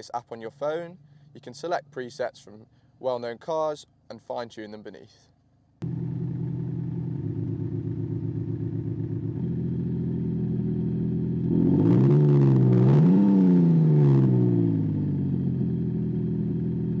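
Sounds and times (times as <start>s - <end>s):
synthetic exhaust note: 5.8s - 17.0s.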